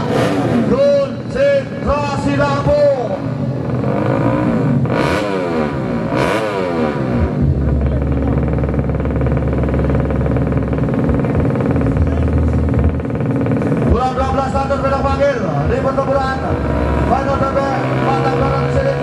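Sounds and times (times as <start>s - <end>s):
motorbike engines revving: 0.0s - 19.0s.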